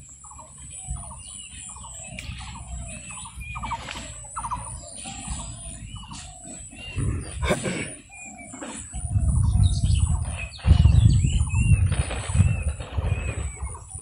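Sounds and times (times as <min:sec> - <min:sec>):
low wind rumble: 0:08.9 - 0:14.0.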